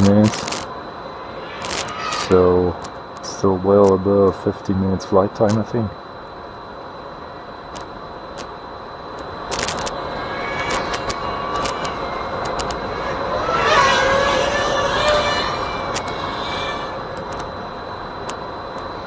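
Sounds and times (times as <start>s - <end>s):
sharp clicks: 9.1s - 12.8s
vehicle passing by: 10.1s - 17.0s.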